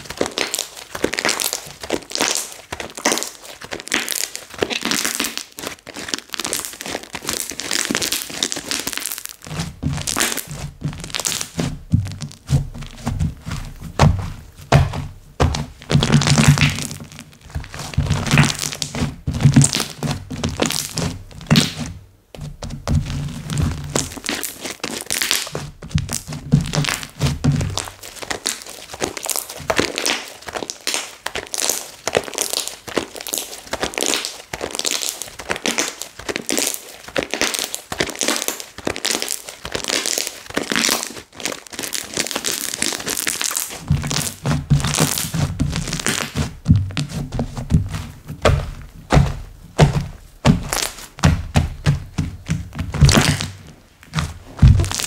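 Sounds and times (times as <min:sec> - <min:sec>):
slime squished by hand: 0:00.0 - 0:21.9, 0:23.0 - 0:55.0
low thudding: 0:46.6 - 0:53.6.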